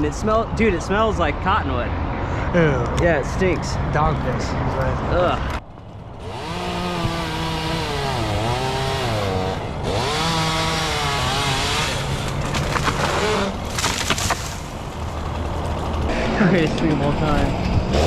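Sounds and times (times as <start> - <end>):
chainsaw cutting wood: 6.2 - 16.5, 17.4 - 18.0
sharp cracks: 11.2 - 16.1.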